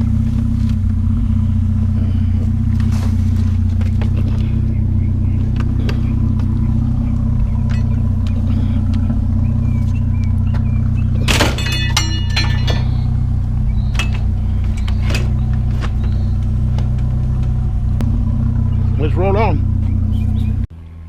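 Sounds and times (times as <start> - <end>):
truck engine idling: 0.0 - 21.0
loud metallic clang: 11.2 - 14.3.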